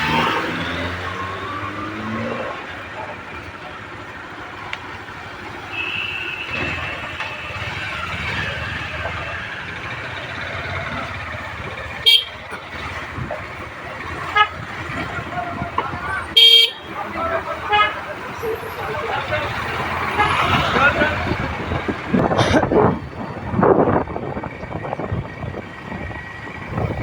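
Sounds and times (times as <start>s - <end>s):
motorcycle engine and road rumble: 0.0s - 27.0s
motorcycle horn toot: 5.7s - 7.8s, 12.0s - 12.9s, 14.2s - 14.8s, 16.3s - 17.0s, 17.6s - 18.1s, 20.1s - 20.8s.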